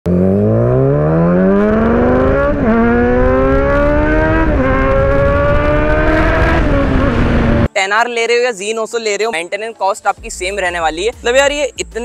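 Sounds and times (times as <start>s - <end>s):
motorcycle engine accelerating: 0.1s - 7.7s.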